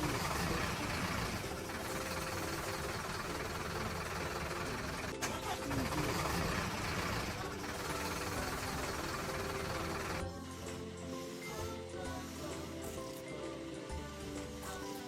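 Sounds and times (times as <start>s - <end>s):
vehicle engine rumble: 0.0s - 10.2s.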